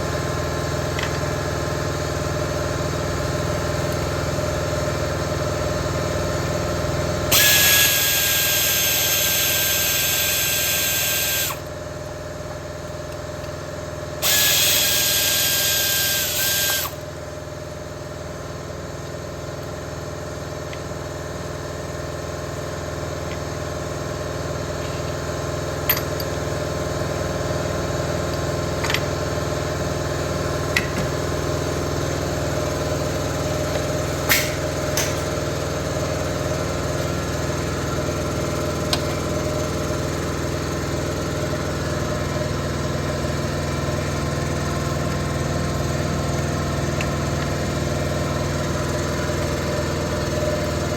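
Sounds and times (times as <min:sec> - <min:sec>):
mechanical hum: 0:00.0 - 0:50.9
power tool whining: 0:07.2 - 0:11.7, 0:14.2 - 0:17.1.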